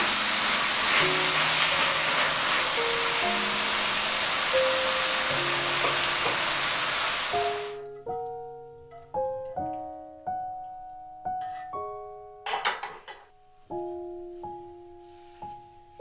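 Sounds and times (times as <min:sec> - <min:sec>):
food sizzling in a skillet: 0:00.0 - 0:07.8
soft piano music: 0:00.0 - 0:16.0.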